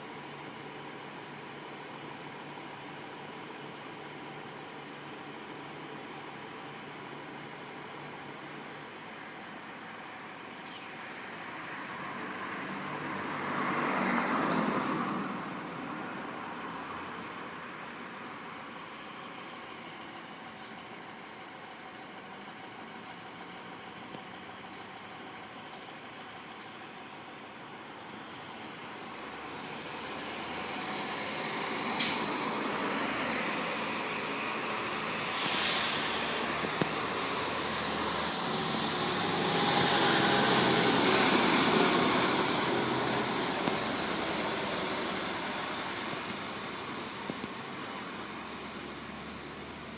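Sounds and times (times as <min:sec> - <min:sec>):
truck engine running: 0:18.8 - 0:49.9.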